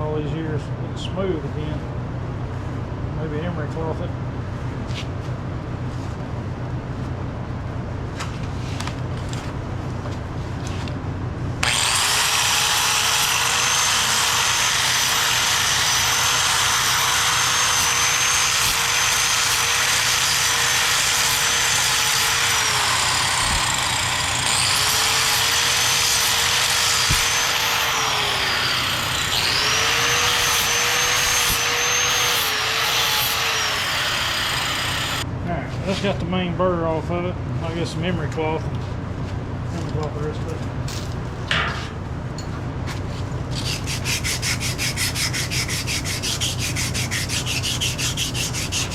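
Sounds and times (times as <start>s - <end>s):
electric grinder grinding metal: 11.6s - 35.2s, 43.6s - 48.9s.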